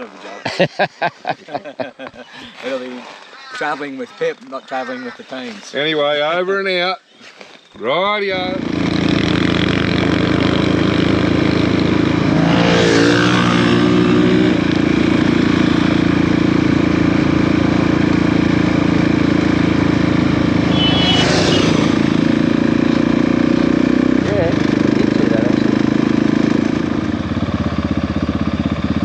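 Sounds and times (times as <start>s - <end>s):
motorcycle engine accelerating: 8.3s - 29.0s.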